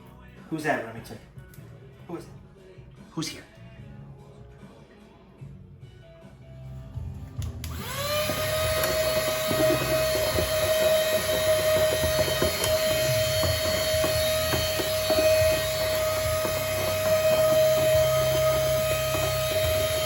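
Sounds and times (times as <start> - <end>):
electric motor whining: 7.5 - 20.0
knocks and scrapes: 8.3 - 20.0.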